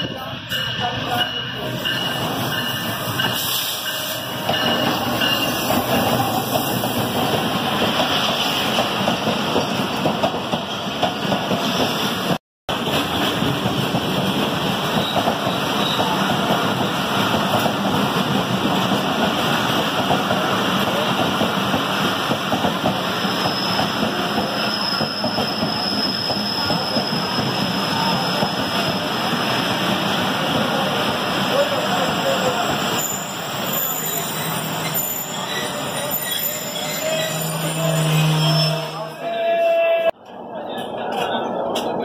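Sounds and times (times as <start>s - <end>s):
train rumbling and clattering: 0.0s - 33.0s, 39.7s - 42.0s
crowd voices: 35.3s - 42.0s.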